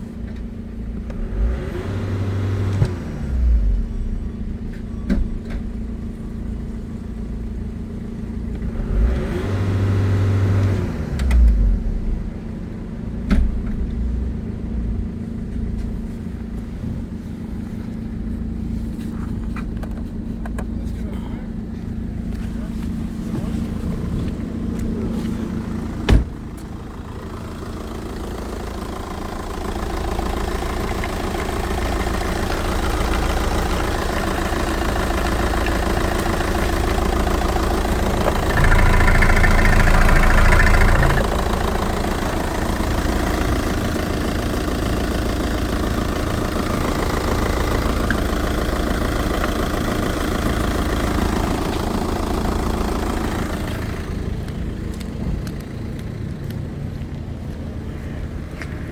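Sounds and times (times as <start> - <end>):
diesel engine running: 0.0 - 58.9
sharp engine knock: 37.5 - 41.8.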